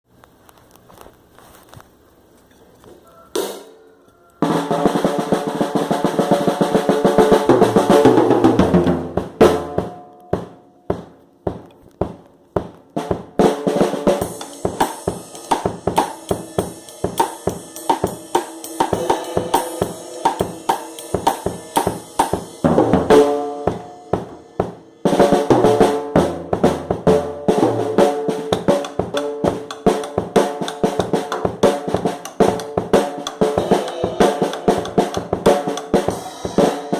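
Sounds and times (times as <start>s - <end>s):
drum kit playing: 3.4s - 3.8s, 4.4s - 36.9s
cymbals ringing: 14.2s - 26.2s, 27.4s - 36.9s.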